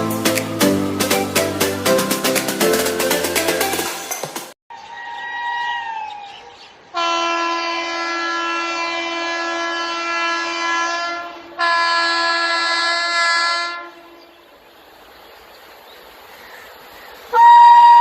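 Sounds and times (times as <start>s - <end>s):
locomotive horn blasts: 7.0s - 14.2s, 17.3s - 18.0s.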